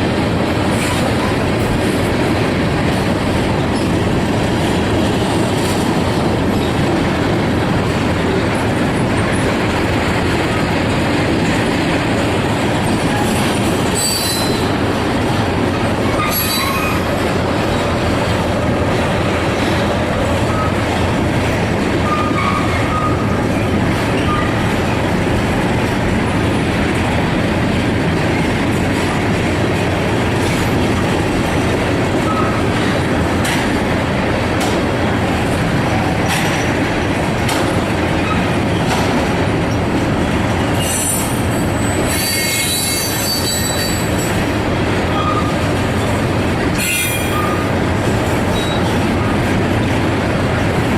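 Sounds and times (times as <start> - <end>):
freight train rumbling past: 0.0 - 50.9
high wheel squeals: 13.0 - 15.0, 16.0 - 17.9, 22.0 - 23.3, 40.7 - 44.4, 45.1 - 45.7, 46.7 - 47.7, 48.5 - 49.0.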